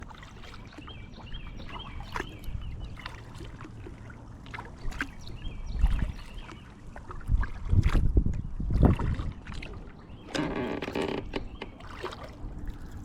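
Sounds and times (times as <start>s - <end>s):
water dripping from paddle: 0.0s - 13.0s
paddle knocking: 9.5s - 12.8s.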